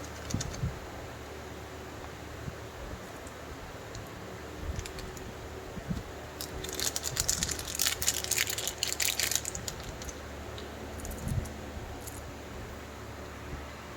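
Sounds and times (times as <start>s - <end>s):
wrapper being crinkled and torn: 4.7s - 5.3s, 6.4s - 10.2s.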